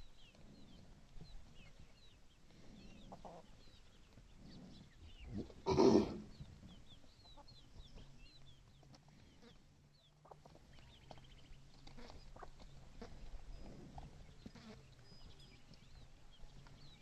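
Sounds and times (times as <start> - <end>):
chicks peeping: 2.8 - 5.5, 6.2 - 17.0
hen clucking: 3.1 - 3.5, 5.3 - 6.4.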